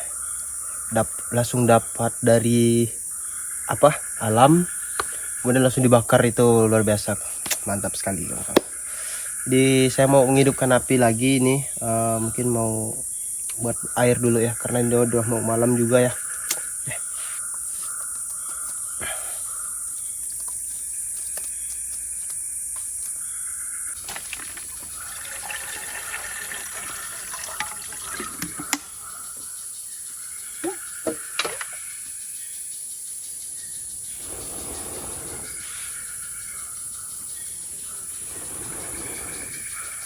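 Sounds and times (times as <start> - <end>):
insects shrilling: 0.0 - 40.0
water pouring into a pot: 24.0 - 28.8.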